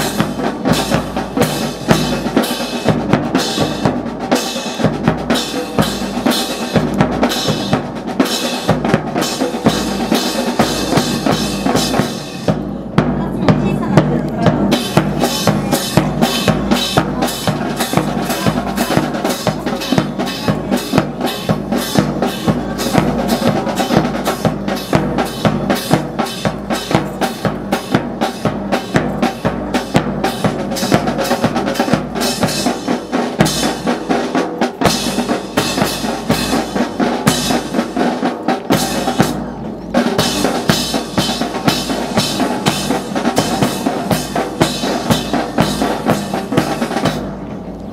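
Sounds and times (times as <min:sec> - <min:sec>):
snare and bass drums marching: 0:00.0 - 0:47.6.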